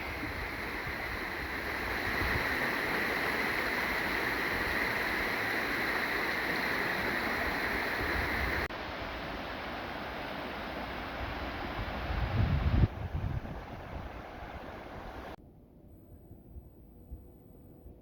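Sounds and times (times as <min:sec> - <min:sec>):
stream rushing: 0:00.0 - 0:15.4.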